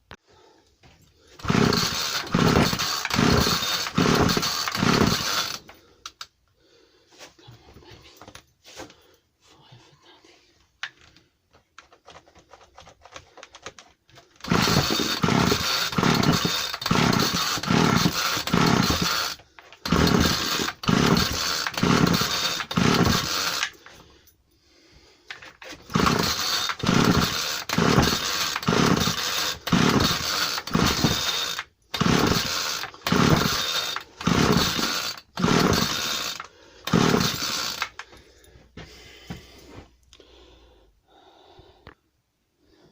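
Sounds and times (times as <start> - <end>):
small two-stroke engine pull-starting: 1.4 - 5.7, 14.4 - 23.8, 25.6 - 38.1.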